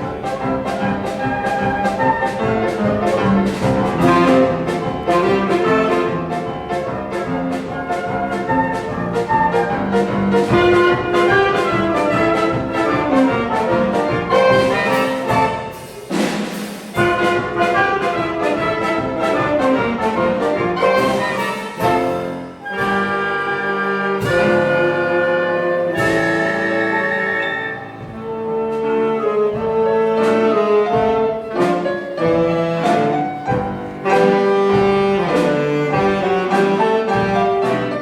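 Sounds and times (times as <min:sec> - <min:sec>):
percussion beat: 0:00.0 - 0:22.4
children's brass band playing: 0:00.0 - 0:38.0.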